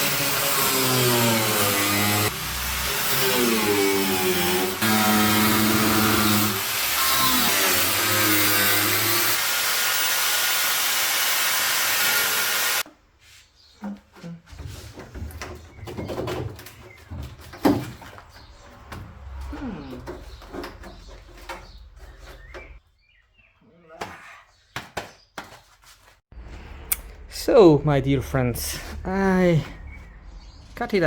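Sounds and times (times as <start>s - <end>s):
power tool cutting sheet metal: 0.0s - 12.8s.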